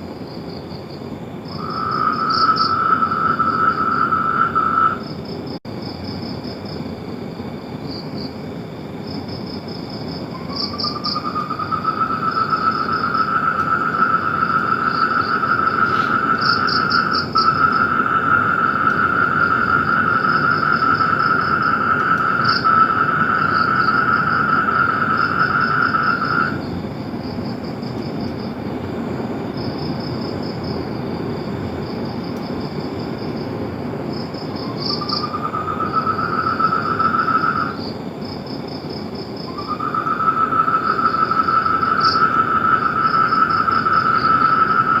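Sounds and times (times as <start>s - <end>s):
insects chirping in bursts: 0.0s - 45.0s.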